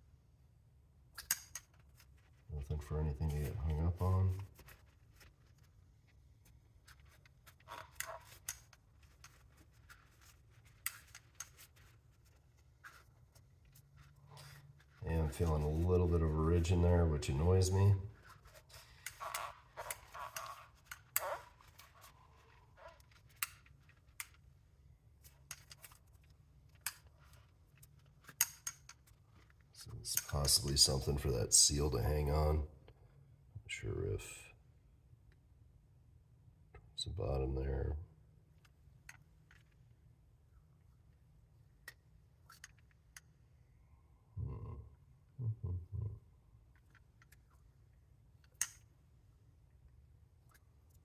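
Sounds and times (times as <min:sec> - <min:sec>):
low steady room hum: 0:00.0 - 0:51.0
light handling clicks and rubs: 0:01.2 - 0:24.6, 0:25.2 - 0:31.1, 0:38.6 - 0:39.9, 0:41.8 - 0:43.4.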